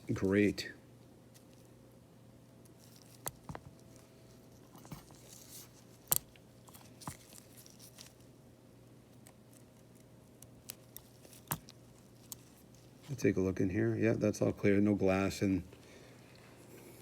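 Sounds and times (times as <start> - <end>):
small tools clicking and scraping: 2.6 - 8.2, 9.2 - 13.0.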